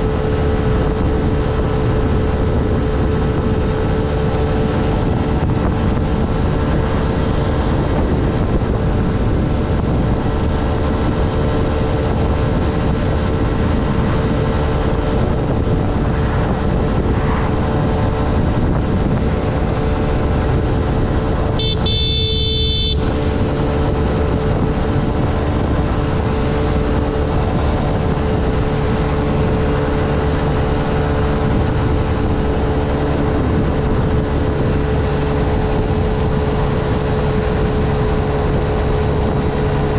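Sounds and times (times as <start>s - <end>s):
road and wind noise: 0.0s - 39.9s
small motorcycle engine running: 0.0s - 39.9s
vehicle horn: 21.5s - 23.4s.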